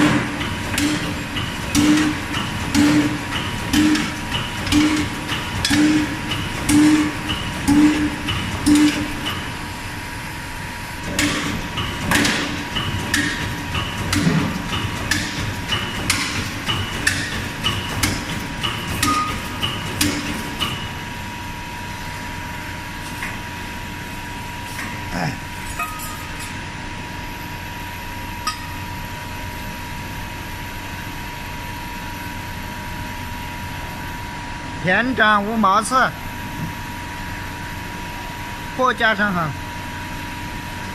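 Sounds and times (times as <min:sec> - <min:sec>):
machine hum: 0:00.0 - 0:40.9
sharp metal clanks: 0:18.9 - 0:20.8, 0:25.7 - 0:26.6.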